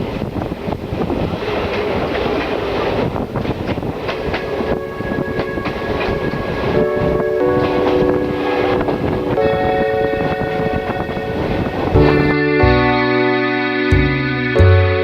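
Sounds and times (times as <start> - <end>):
train wheels clattering over joints: 0.0 - 12.3
steady tones: 3.9 - 15.0.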